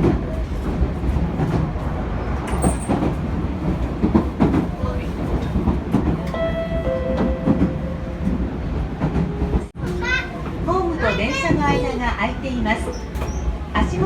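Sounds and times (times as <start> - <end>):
train rumble: 0.0 - 14.0
wheels clattering on rails: 0.0 - 14.0
pitched tone: 6.3 - 8.6.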